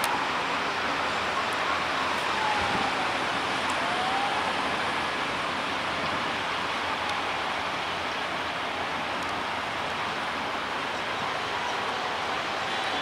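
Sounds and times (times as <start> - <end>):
train coaches rolling on track: 4.8 - 13.0.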